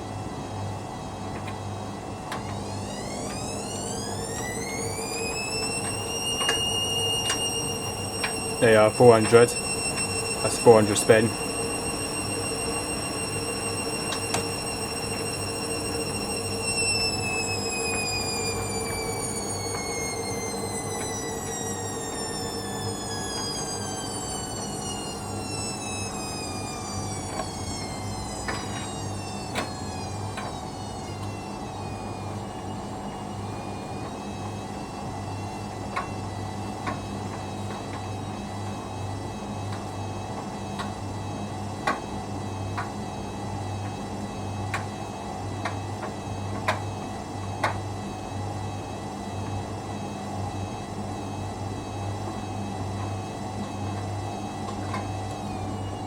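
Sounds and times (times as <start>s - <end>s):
steady low hum: 0.0s - 41.9s
washing machine motor whine: 0.0s - 56.0s.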